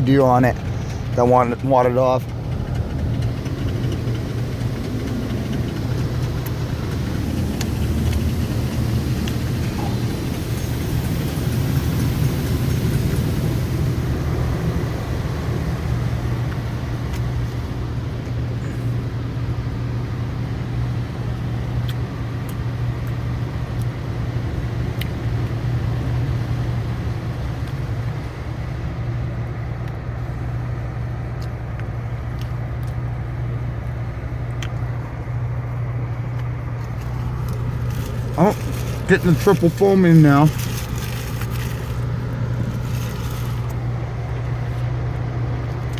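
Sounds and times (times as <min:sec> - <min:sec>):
car wash machinery hum: 0:00.0 - 0:45.9
water spray hissing on car: 0:03.8 - 0:19.0, 0:36.9 - 0:45.6.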